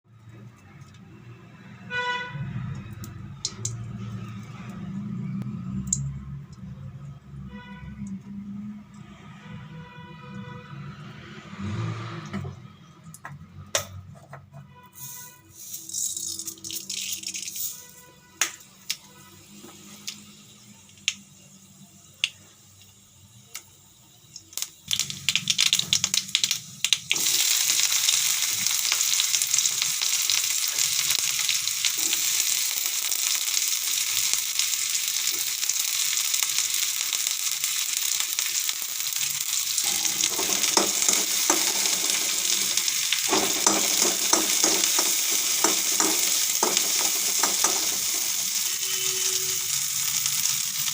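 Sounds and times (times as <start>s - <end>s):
food sizzling in hot oil: 15.0s - 50.9s.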